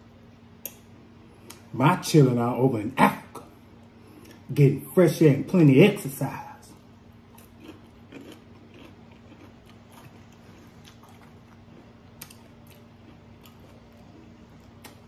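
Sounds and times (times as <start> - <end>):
low steady hum: 0.0 - 15.0
faint chewing with mouth clicks: 3.8 - 4.5, 6.7 - 15.0.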